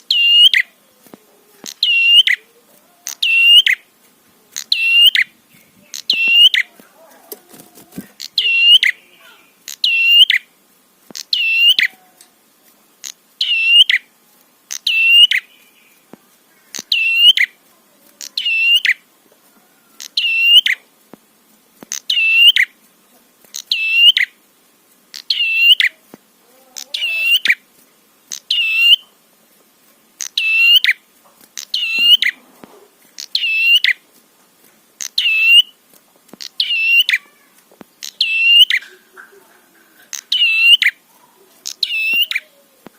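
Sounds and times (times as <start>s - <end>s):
bird short sharp calls: 1.6s - 3.8s, 8.1s - 10.4s, 36.4s - 39.1s, 41.6s - 42.6s.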